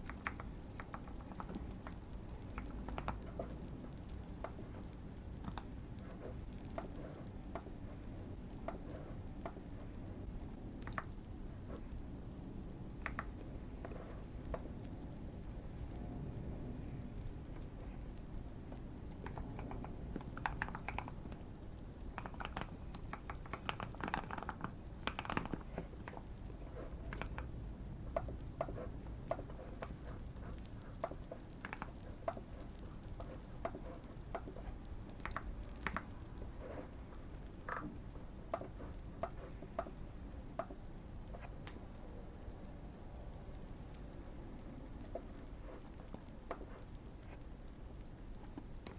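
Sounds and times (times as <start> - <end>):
fire crackling: 0.0 - 48.9
mechanical keyboard typing: 19.2 - 36.8.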